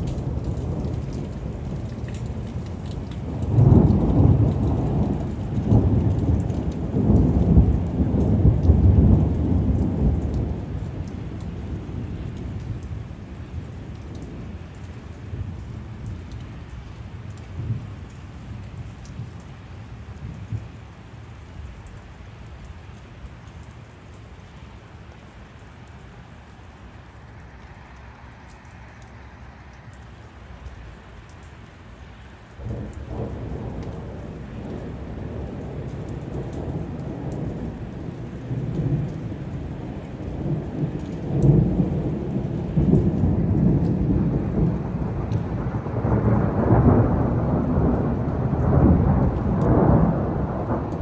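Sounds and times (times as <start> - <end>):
rolling thunder: 0.0 - 14.6, 32.6 - 51.0
steady rain hiss: 0.0 - 51.0.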